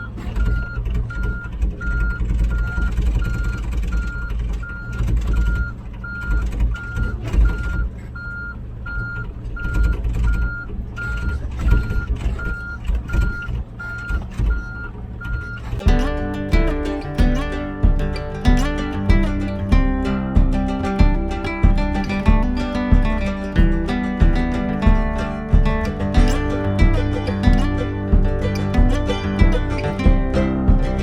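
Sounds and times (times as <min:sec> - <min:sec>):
reversing alarm beeping: 0:00.0 - 0:31.0
diesel engine rumble: 0:15.8 - 0:31.0.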